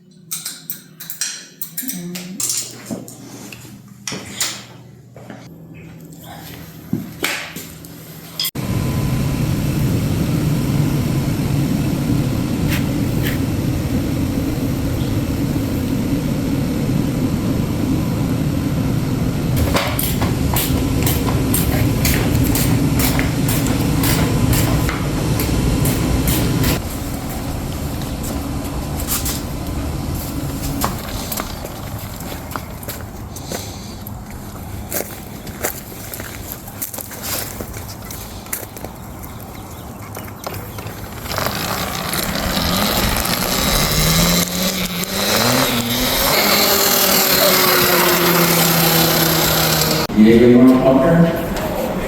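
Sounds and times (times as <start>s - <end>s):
tyres and wind rumbling: 8.5s - 52.0s.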